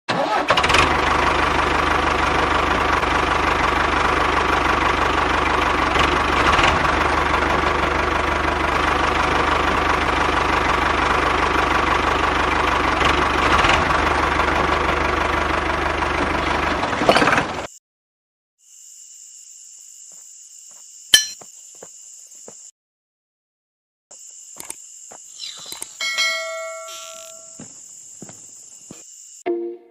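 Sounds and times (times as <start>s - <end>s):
miniature diesel engine running: 0.1s - 17.7s.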